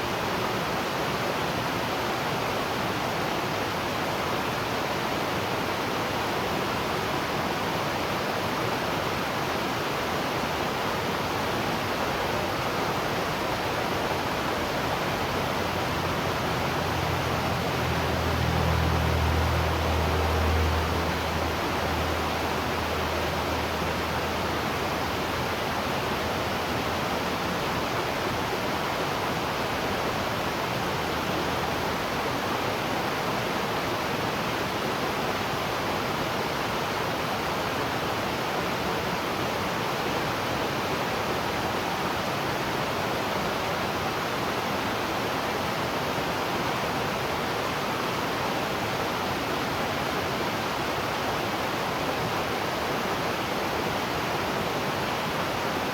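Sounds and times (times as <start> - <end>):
waterfall rushing: 10.5 - 28.3
low hum: 11.7 - 26.6.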